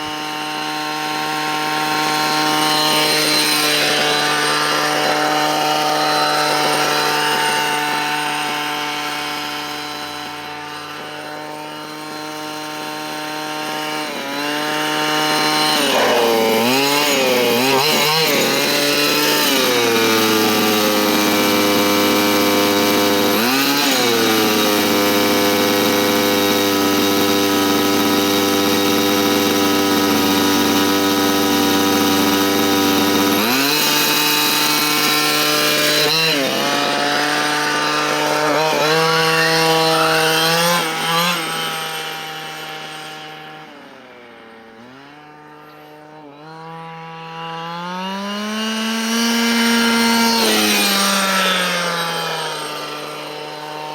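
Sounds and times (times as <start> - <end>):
small two-stroke engine running: 0.0 - 53.9.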